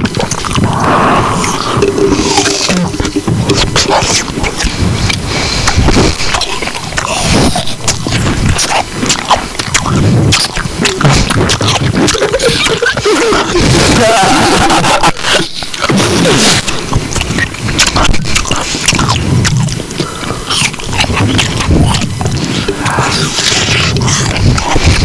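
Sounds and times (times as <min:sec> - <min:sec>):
muffled voice: 0:00.0 - 0:04.4
chewing and crunching: 0:00.0 - 0:25.0.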